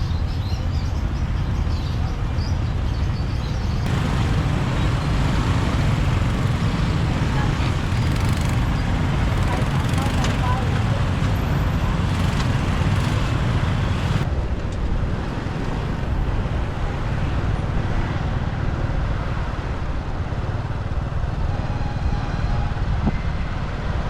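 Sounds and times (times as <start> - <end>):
motorbike engine and road noise: 0.0 - 14.3.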